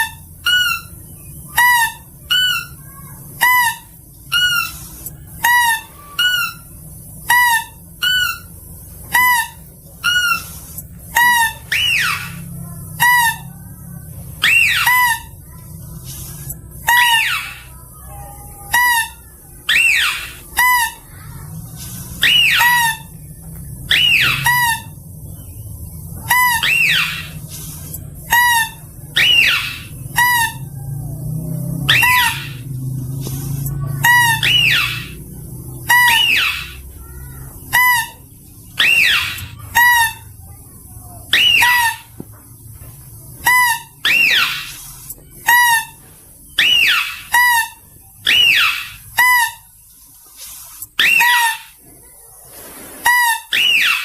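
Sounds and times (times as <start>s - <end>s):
mouse-deer squealing calls: 0.0s - 17.9s, 18.6s - 25.1s, 26.2s - 42.2s, 43.4s - 49.7s, 50.4s - 51.8s, 52.6s - 54.0s.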